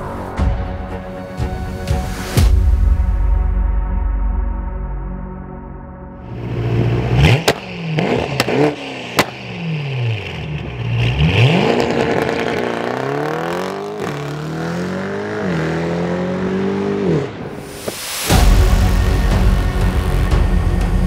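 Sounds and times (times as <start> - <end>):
car engine revving hard: 6.7 - 17.4.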